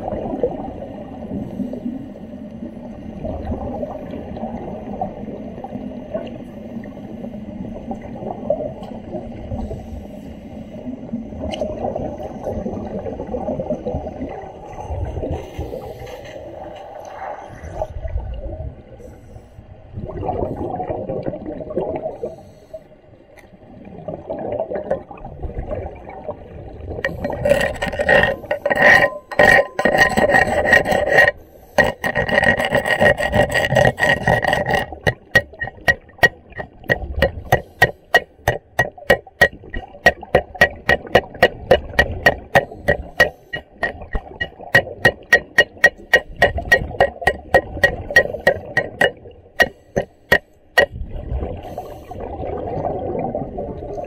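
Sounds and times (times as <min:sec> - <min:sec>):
scraping on metal underwater: 0:27.0 - 0:52.2.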